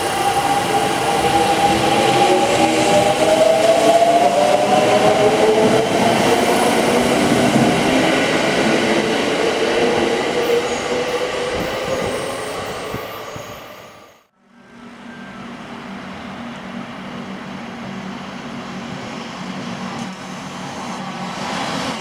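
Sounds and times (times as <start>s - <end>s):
electric train passing: 0.0s - 22.0s.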